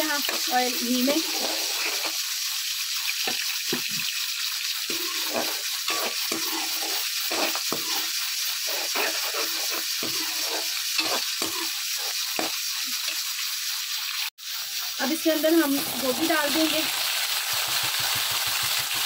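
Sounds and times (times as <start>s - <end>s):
metal spoon scraping a pan: 0.0s - 2.2s, 4.9s - 13.2s
chillies sizzling in hot fat: 0.0s - 19.0s.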